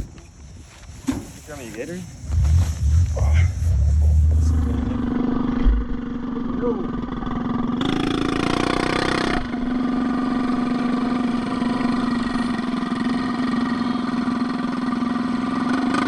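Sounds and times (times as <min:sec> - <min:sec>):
loud rush of noise: 0:02.1 - 0:06.0.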